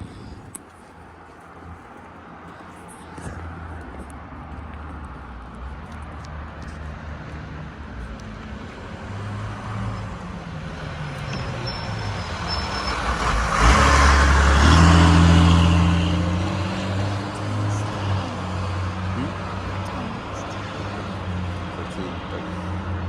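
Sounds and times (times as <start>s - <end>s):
vehicle engine passing by: 5.8s - 23.0s.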